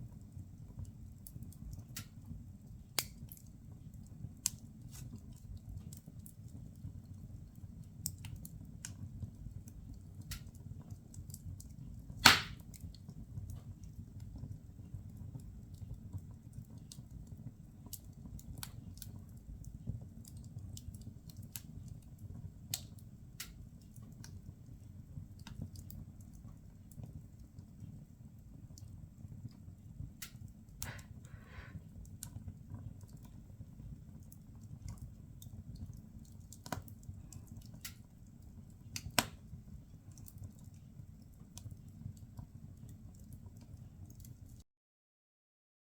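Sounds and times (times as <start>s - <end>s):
firewood crackling and popping: 0.0s - 44.6s
loud wood snap: 12.2s - 12.6s.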